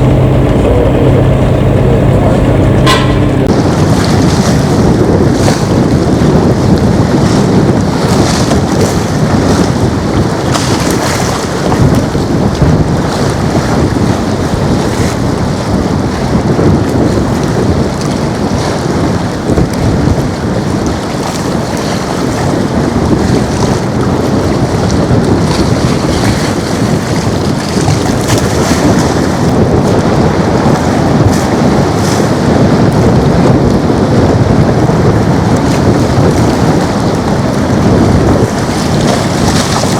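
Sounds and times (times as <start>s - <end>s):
loud jet engine rumble: 0.0s - 5.5s.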